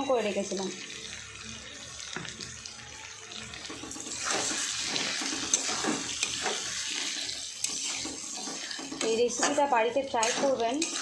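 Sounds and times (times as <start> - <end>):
oil sizzling: 0.0 - 11.0
metal spatula scraping pan: 3.9 - 11.0.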